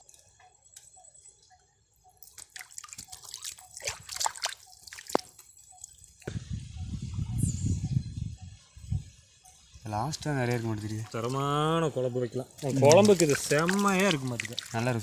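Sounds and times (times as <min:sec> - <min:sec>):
water dripping and splashing: 0:02.2 - 0:06.3, 0:10.1 - 0:15.0.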